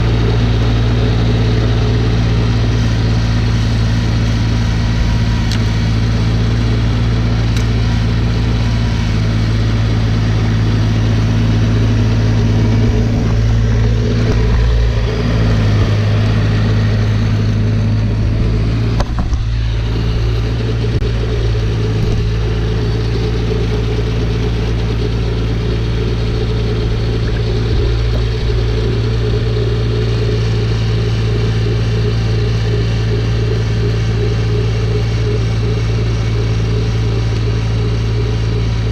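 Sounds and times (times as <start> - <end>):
snowblower engine running: 0.0 - 38.9.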